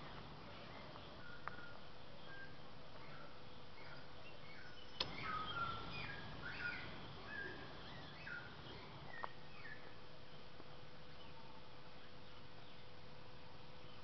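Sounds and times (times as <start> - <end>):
birds chirping: 0.0 - 12.9
sharp click: 5.0 - 6.3.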